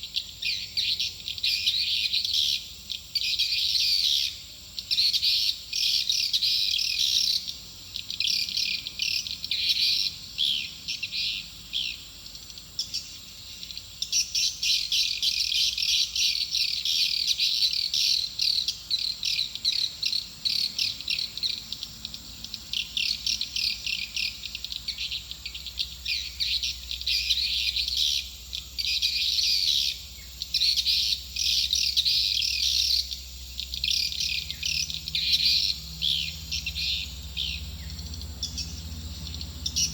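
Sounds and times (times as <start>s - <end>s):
swiftlet twittering chirps: 3.2s - 39.9s.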